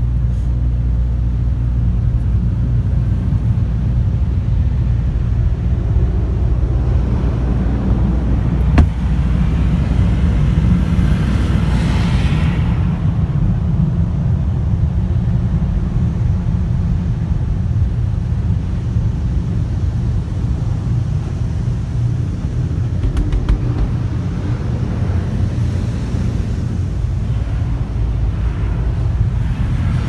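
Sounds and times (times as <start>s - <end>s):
car rumbling along: 22.0s - 28.8s.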